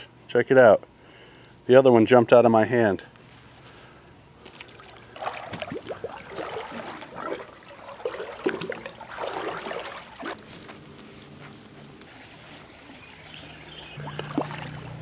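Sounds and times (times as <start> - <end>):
creek water splashing: 4.4 - 10.4, 12.0 - 15.0.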